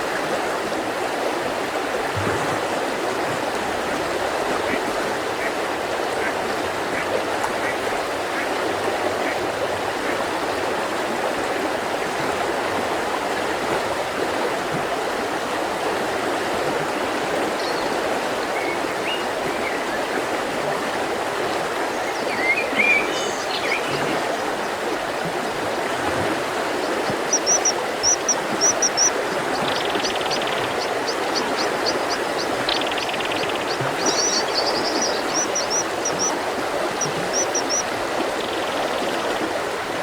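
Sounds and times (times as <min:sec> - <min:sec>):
river rushing: 0:00.0 - 0:40.0
birds chirping: 0:26.6 - 0:39.2.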